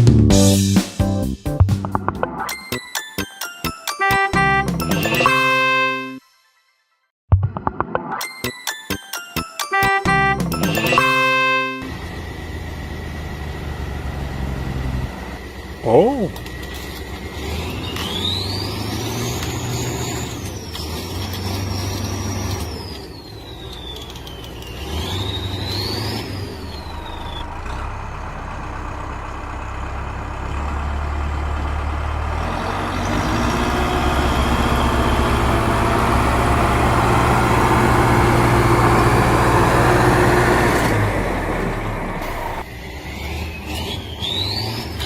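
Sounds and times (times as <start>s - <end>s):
high engine whine: 10.7s - 44.2s
engine rumble: 11.8s - 45.0s.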